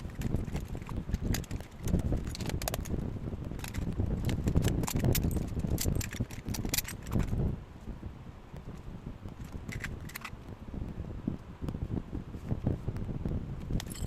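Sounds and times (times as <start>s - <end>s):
small metal parts clattering: 3.6s - 7.4s, 13.8s - 14.0s.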